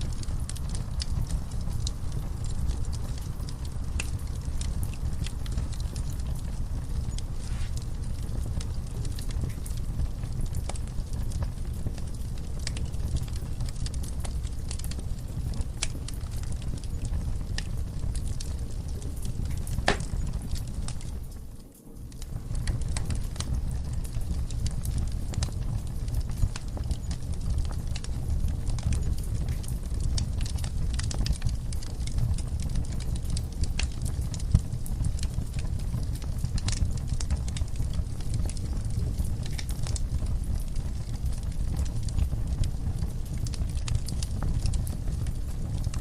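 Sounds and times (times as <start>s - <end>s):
fire crackling and popping: 0.0s - 46.0s
wood fire rumbling: 0.0s - 46.0s.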